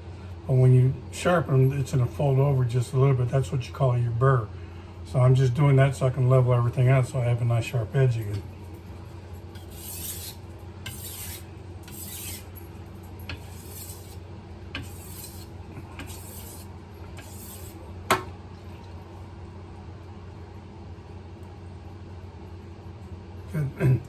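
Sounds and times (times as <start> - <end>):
knife scraping on whetstone: 9.5 - 12.5, 13.3 - 17.8.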